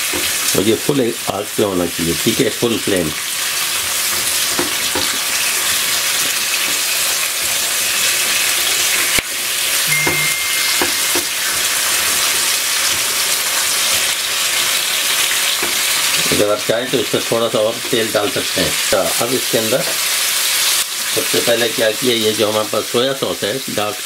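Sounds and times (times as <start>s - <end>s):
onion sizzling in hot oil: 0.0s - 24.0s.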